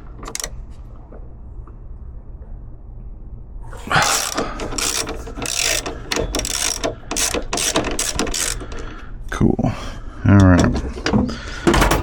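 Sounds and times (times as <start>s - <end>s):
ratchet wrench clicking: 0.0s - 0.5s, 4.0s - 8.8s.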